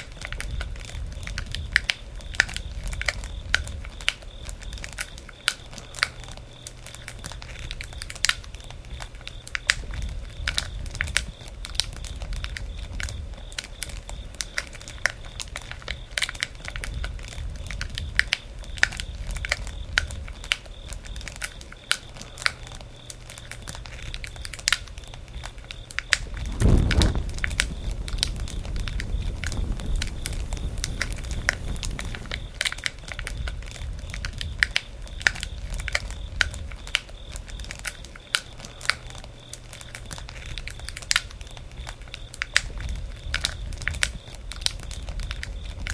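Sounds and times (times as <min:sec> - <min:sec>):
low rumble of flames: 0:26.3 - 0:32.7
campfire crackling and popping: 0:26.4 - 0:32.7.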